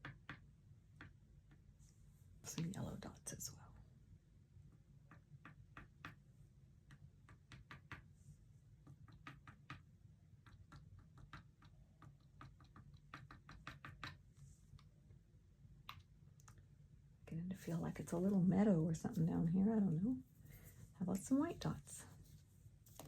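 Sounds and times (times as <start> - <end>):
low room hum: 0.0 - 23.0.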